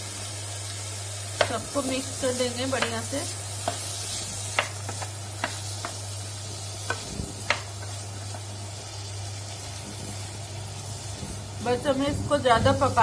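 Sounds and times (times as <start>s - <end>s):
vegetables sizzling in butter: 0.0s - 13.0s
spatula tapping a pan: 2.7s - 3.9s, 4.5s - 6.1s, 6.8s - 8.5s
spatula stirring: 2.8s - 8.5s.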